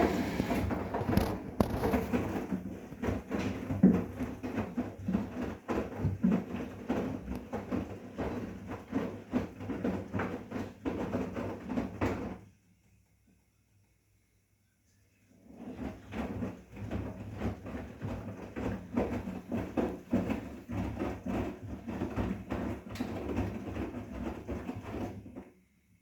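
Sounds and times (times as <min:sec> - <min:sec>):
washing machine drum turning: 0:00.0 - 0:12.0
laundry thudding and sloshing: 0:00.0 - 0:12.5, 0:15.4 - 0:25.5.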